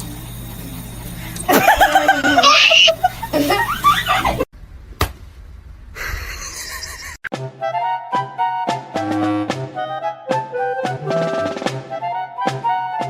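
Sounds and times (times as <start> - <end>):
person laughing loudly: 1.5 - 4.5, 6.0 - 7.2
music with drums: 8.7 - 13.0.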